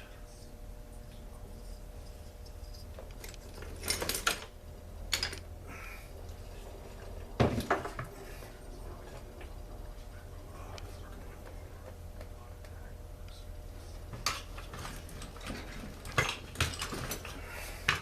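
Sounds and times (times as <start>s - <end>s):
low hum: 0.0s - 17.9s
metal tools clinking on workbench: 5.1s - 5.5s.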